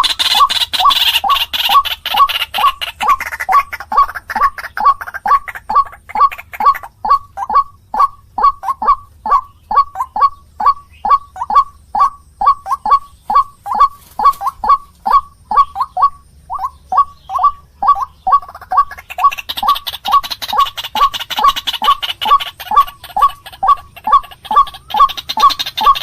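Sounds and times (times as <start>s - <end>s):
waterhen calling: 0.0s - 26.0s.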